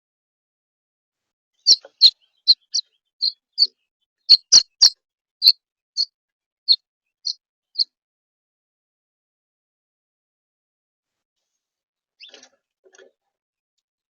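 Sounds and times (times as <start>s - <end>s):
bird chirping: 1.6s - 6.1s, 6.7s - 7.9s, 12.2s - 12.5s.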